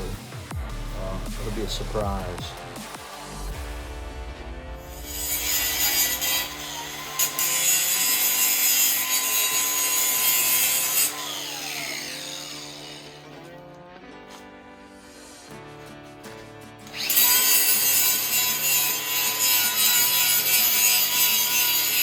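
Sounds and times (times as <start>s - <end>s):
background music: 0.0s - 22.0s
power grinder cutting steel: 4.8s - 16.1s, 16.8s - 22.0s.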